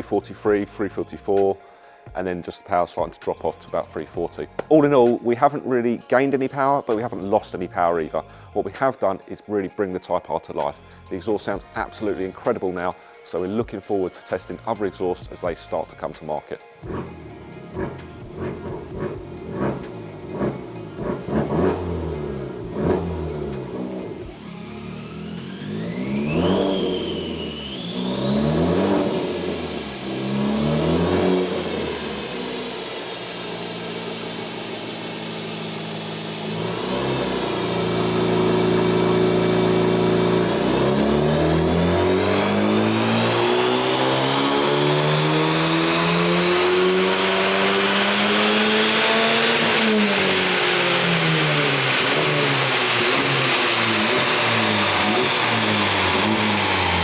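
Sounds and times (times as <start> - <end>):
car engine revving: 16.8 - 57.0.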